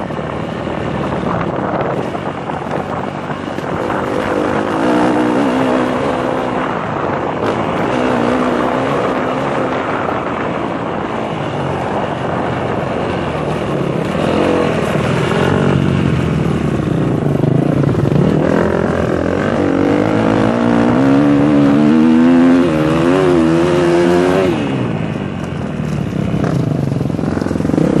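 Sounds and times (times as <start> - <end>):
motocross engine revving: 3.6 - 10.0, 14.1 - 25.0.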